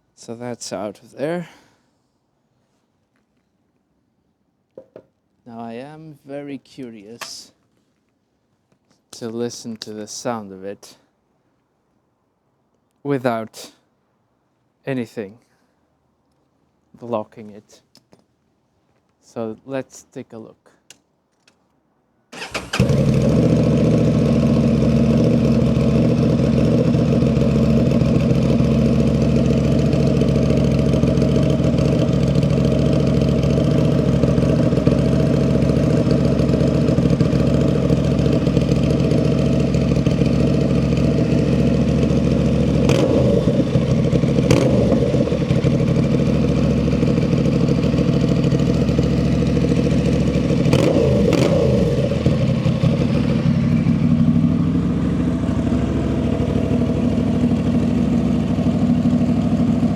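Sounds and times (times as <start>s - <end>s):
motorcycle engine starting and idling: 7.2s - 7.4s, 22.3s - 59.9s
motorcycle throttle blips: 22.4s - 59.9s.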